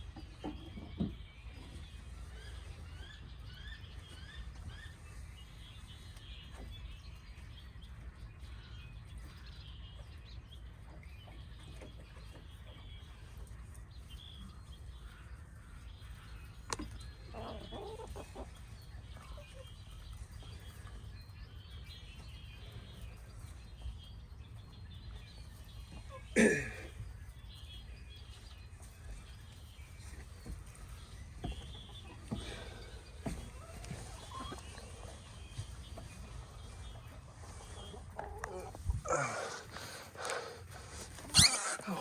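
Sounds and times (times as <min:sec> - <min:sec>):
hens clucking: 0:14.8 - 0:21.1, 0:28.2 - 0:42.0
wind rumble on microphone: 0:38.7 - 0:39.1.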